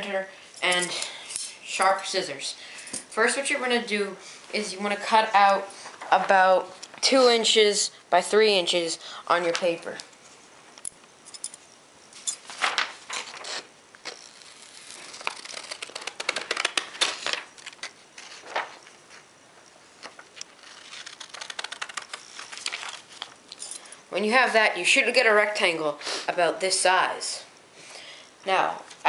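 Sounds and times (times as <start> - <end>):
paper rustling: 12.4 - 19.3, 20.0 - 23.4
scissors snipping paper: 13.3 - 16.8, 20.5 - 23.3.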